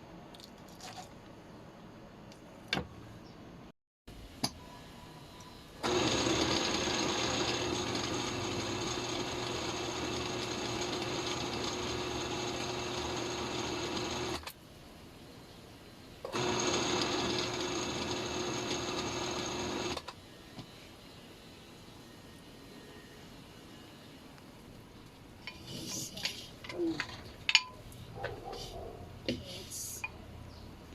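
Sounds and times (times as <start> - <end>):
small appliance motor running: 5.8 - 14.5, 16.3 - 20.1.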